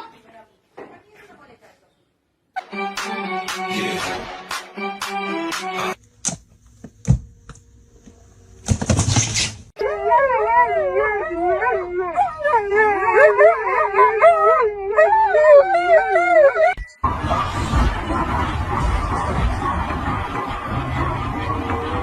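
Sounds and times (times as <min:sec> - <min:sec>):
dog howling: 0:09.8 - 0:16.8.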